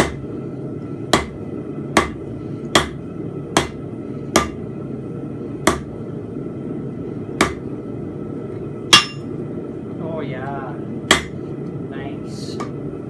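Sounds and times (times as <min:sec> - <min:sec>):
hammer striking steel on anvil: 0:01.1 - 0:01.4, 0:02.0 - 0:03.0, 0:03.6 - 0:04.6, 0:05.6 - 0:05.9, 0:08.9 - 0:09.3, 0:11.1 - 0:11.4.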